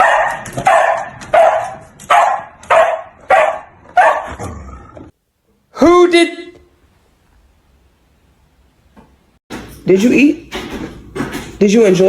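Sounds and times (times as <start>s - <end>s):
dog barking: 0.0s - 4.4s.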